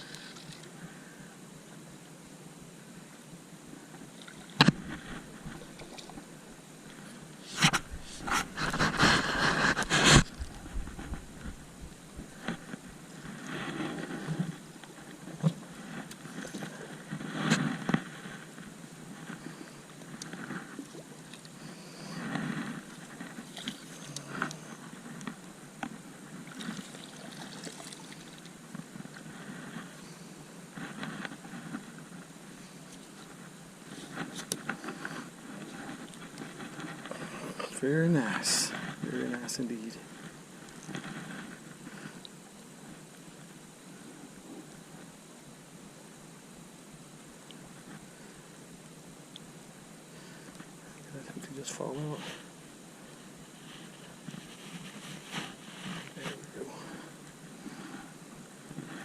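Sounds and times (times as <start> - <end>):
water lapping around boat: 4.1 - 39.0
scraping on a boat: 7.0 - 18.6.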